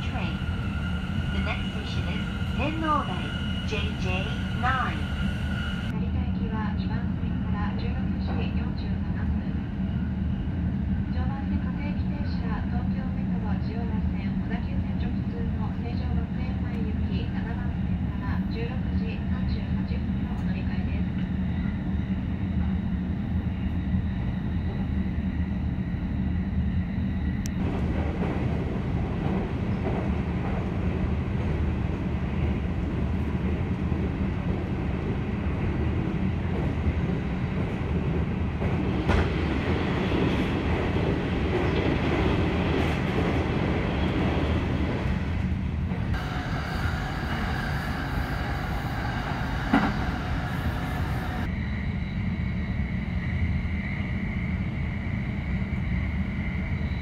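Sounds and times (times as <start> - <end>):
train wheels rumbling on track: 20.3 - 57.0.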